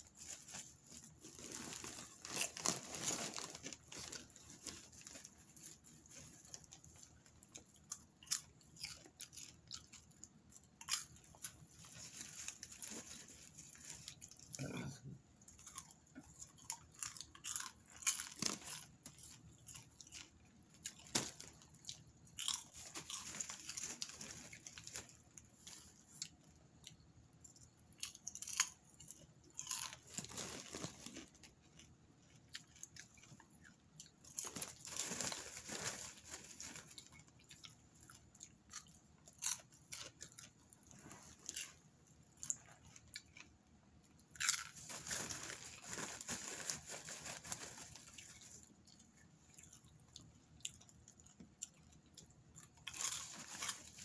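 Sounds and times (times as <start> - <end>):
hand rustling plastic bag: 0.0 - 7.2, 34.4 - 37.1, 44.7 - 48.7
popcorn being chewed: 0.0 - 54.0.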